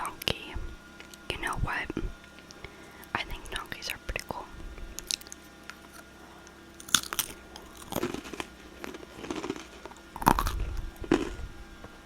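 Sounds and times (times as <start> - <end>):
crunching and chewing snack: 4.9 - 12.0.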